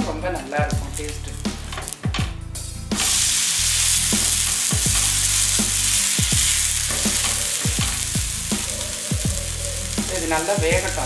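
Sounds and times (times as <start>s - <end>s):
pancake sizzling in oil: 2.9s - 11.0s.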